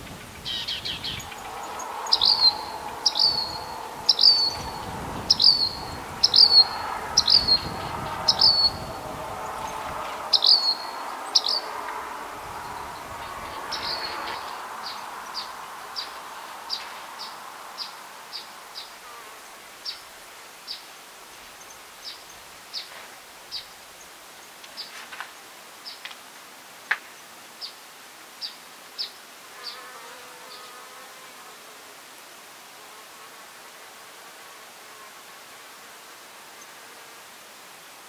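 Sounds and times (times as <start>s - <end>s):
small bird chip calls: 0.2s - 8.8s, 9.6s - 11.7s
buzzing insect: 29.5s - 31.9s.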